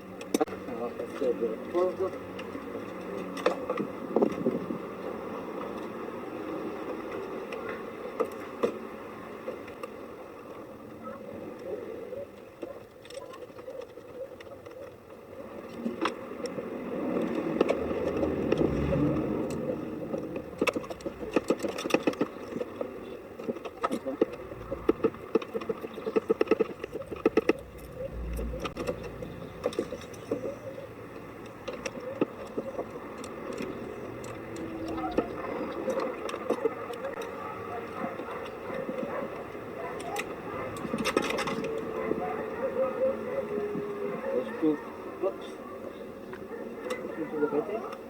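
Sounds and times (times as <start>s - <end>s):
low background rumble: 17.6s - 22.5s, 24.3s - 33.1s.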